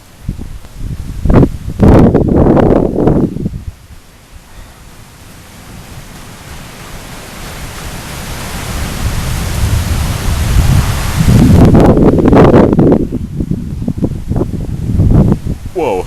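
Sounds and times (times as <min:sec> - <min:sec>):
wind gust buffeting microphone: 0:00.0 - 0:04.8, 0:06.1 - 0:16.0
wind and rain hiss: 0:00.0 - 0:16.0.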